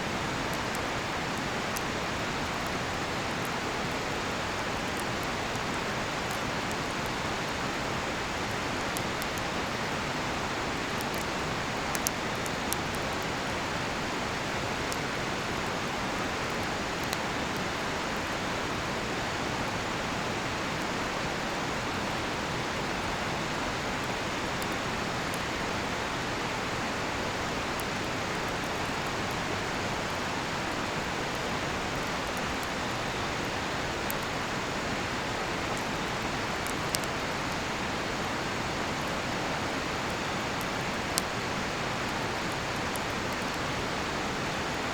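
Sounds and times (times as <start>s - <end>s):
campfire crackling pops: 0.1s - 19.0s, 30.5s - 34.8s, 35.7s - 37.8s, 38.6s - 43.9s.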